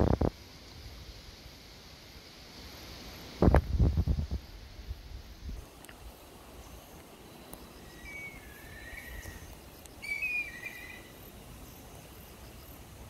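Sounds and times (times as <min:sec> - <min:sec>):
bird chirping: 0:06.6 - 0:12.7.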